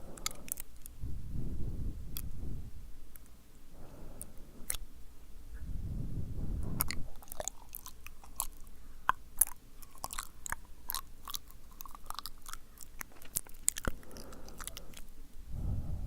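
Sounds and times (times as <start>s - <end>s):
wet mouth clicks and smacks: 4.2s - 4.9s, 6.6s - 15.2s.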